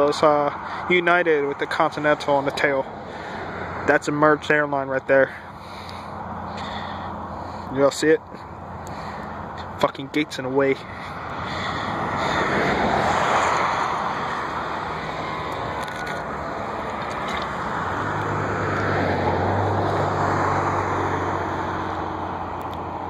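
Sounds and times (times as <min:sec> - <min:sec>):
vehicle passing with rushing sound: 0:00.0 - 0:23.0.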